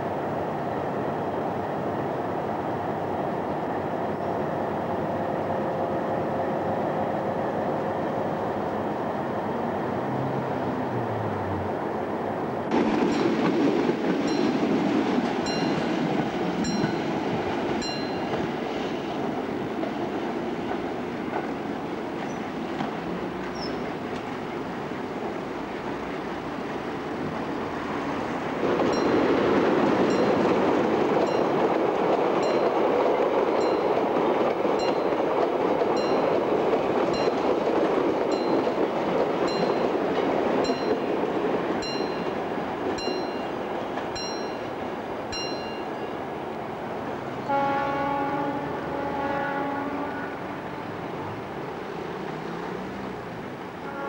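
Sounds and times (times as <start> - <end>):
freight train rumble: 0.0 - 54.0
wheels clicking over rails: 25.7 - 44.6
train horn: 47.4 - 51.2, 53.8 - 54.0.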